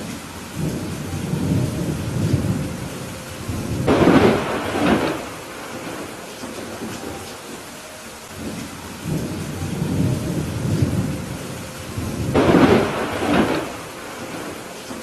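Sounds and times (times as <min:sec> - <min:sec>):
steady rain: 0:00.0 - 0:15.0
thunder rumbling: 0:00.0 - 0:15.0.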